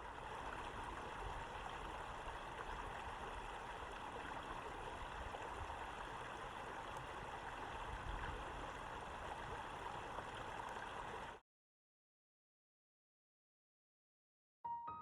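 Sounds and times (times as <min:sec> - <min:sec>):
running water: 0:00.0 - 0:11.4.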